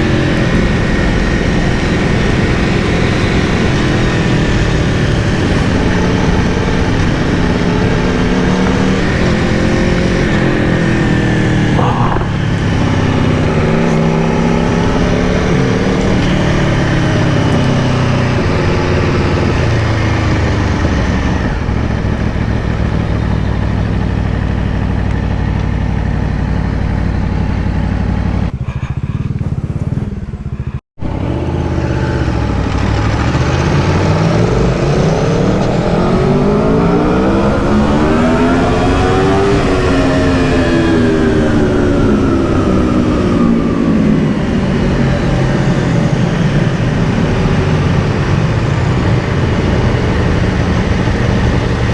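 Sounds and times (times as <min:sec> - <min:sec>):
motorcycle engine at riding speed: 0:00.0 - 0:51.9
air rushing past: 0:03.2 - 0:17.4.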